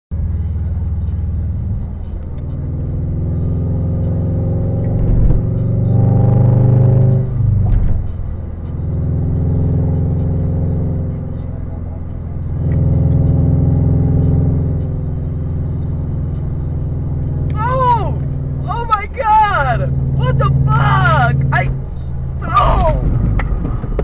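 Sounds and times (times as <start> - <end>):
car engine while driving: 0.1 - 24.0
road rumble: 0.1 - 24.0.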